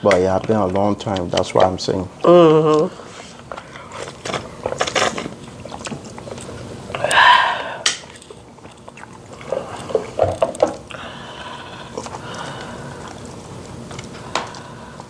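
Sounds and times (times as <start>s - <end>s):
people chewing food: 0.0s - 15.0s
breathy sound: 7.0s - 8.0s, 10.9s - 13.2s.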